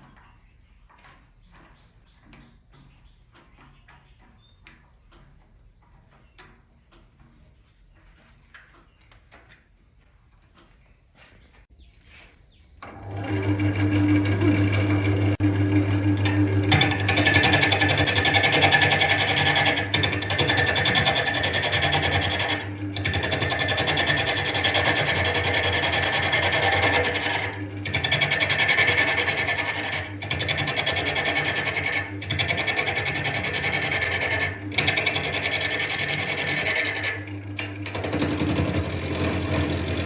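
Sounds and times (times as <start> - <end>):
lathe motor humming: 12.9 - 40.0
tool rasping on spinning wood: 16.7 - 40.0.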